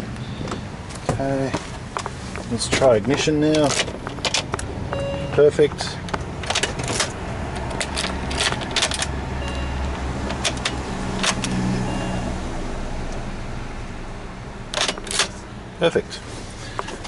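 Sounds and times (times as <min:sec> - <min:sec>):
keys clicking and jingling: 0:03.1 - 0:05.5, 0:06.1 - 0:11.6.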